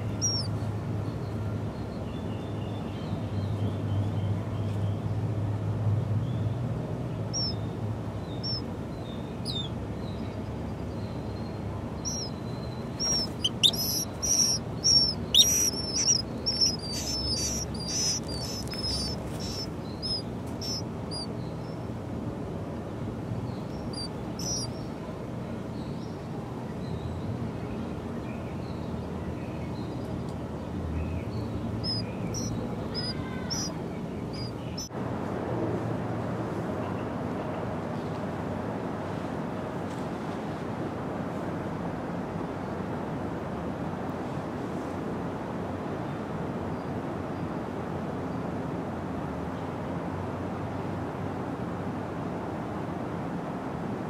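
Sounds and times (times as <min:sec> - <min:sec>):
small birds chirping: 0:00.0 - 0:05.0, 0:06.3 - 0:21.9, 0:23.3 - 0:25.1, 0:25.7 - 0:34.9
steady low hum: 0:07.0 - 0:25.7.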